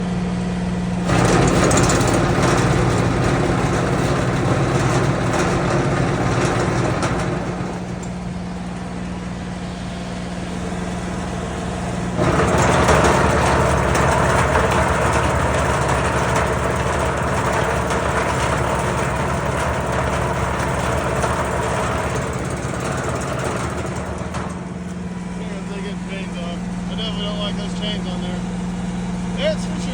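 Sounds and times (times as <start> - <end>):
tractor engine running: 0.0 - 29.9.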